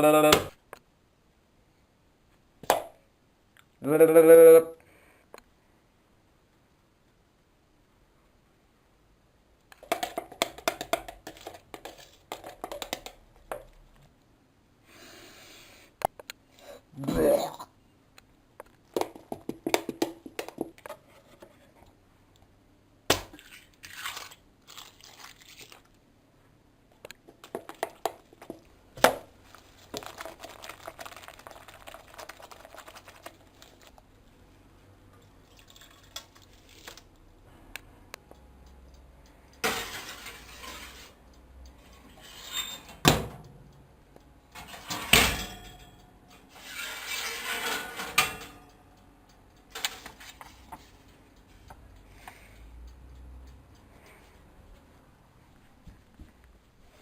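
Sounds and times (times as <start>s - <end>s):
slime squishing by hand: 27.2s - 34.1s.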